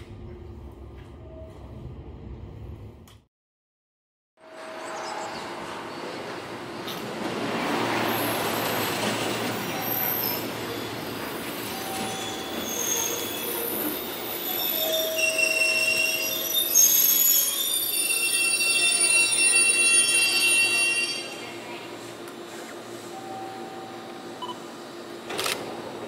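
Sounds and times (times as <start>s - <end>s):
train rolling rush: 4.4s - 26.0s
wheel and brake squeals: 9.7s - 21.3s.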